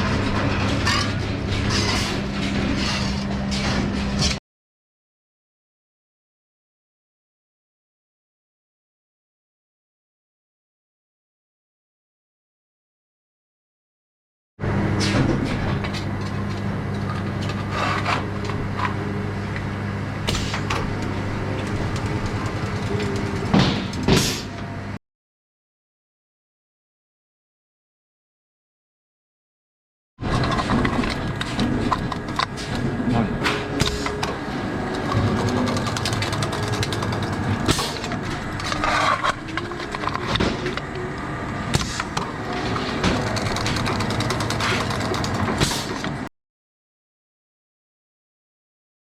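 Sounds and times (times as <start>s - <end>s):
factory machine humming: 15.7s - 25.0s, 30.6s - 46.3s.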